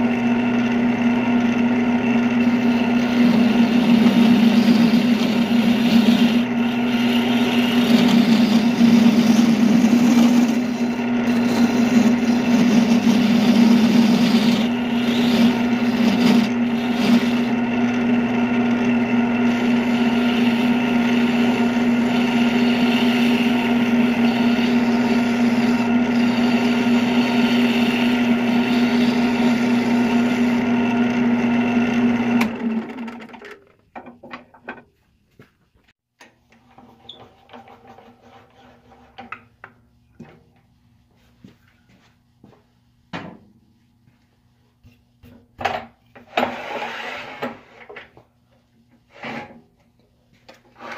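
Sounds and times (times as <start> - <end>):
wood lathe motor humming: 0.0 - 33.3.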